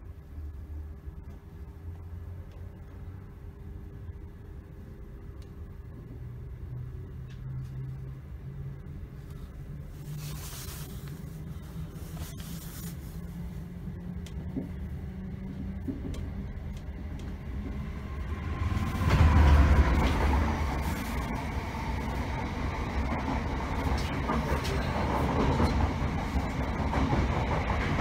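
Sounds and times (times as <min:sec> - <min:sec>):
train rumbling on rails: 0:05.9 - 0:28.0
loud rush of noise: 0:17.6 - 0:24.3.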